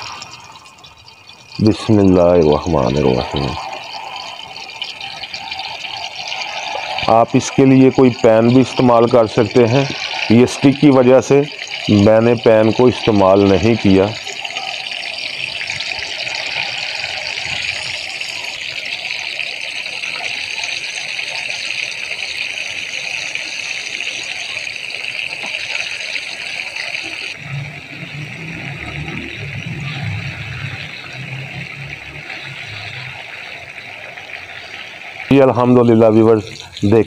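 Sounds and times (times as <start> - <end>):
meat sizzling in hot oil: 0.0 - 37.0
low hum: 27.1 - 34.2.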